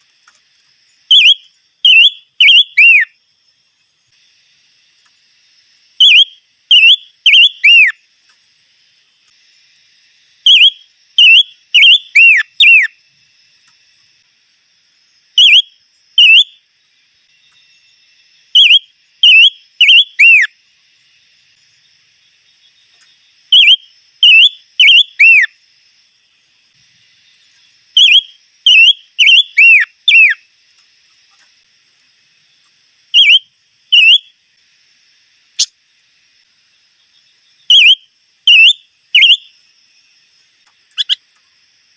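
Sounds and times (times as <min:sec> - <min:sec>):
songbird whistling phrases: 0:01.1 - 0:03.1, 0:06.0 - 0:08.0, 0:10.5 - 0:13.0, 0:15.4 - 0:16.5, 0:18.6 - 0:20.5, 0:23.5 - 0:25.5, 0:28.0 - 0:30.4, 0:33.2 - 0:34.3, 0:37.7 - 0:39.5.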